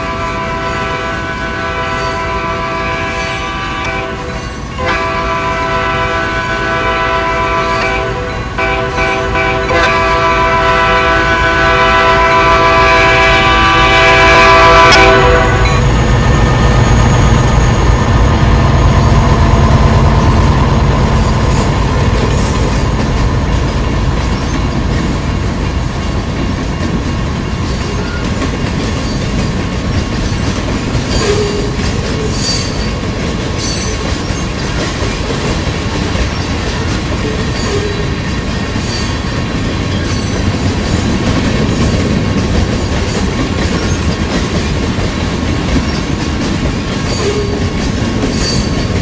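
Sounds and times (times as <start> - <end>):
train air horn: 0.0 - 15.9
rail noise and wheel clatter: 0.0 - 49.0
wheel squeal: 37.2 - 38.2, 47.0 - 47.6, 48.3 - 49.0.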